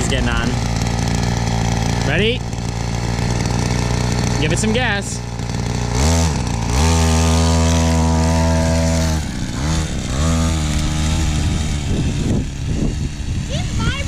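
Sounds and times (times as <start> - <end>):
mini bike engine revving: 0.0 - 14.0.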